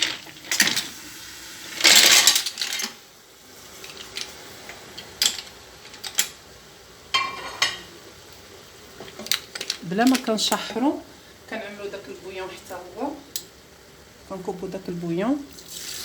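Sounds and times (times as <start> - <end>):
shellfish clattering in a metal pot: 0.0 - 1.0, 1.7 - 3.0, 9.0 - 10.9.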